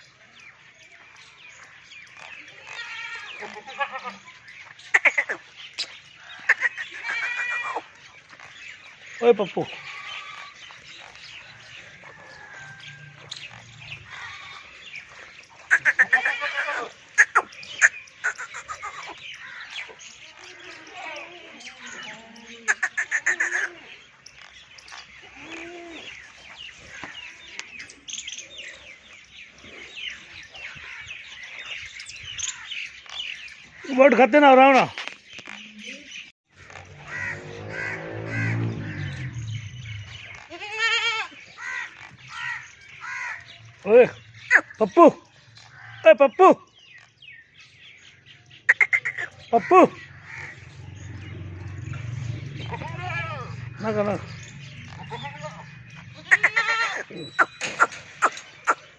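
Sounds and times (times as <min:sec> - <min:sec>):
goat bleating: 0:02.7 - 0:04.2, 0:06.6 - 0:07.9, 0:09.7 - 0:10.6, 0:15.7 - 0:17.4, 0:40.4 - 0:41.4, 0:52.7 - 0:54.0, 0:55.0 - 0:57.5
crows cawing: 0:04.8 - 0:08.4, 0:09.7 - 0:20.1, 0:22.7 - 0:23.8, 0:36.6 - 0:39.3, 0:40.0 - 0:43.6, 0:45.6 - 0:46.2, 0:48.7 - 0:51.1, 0:54.9 - 0:58.9.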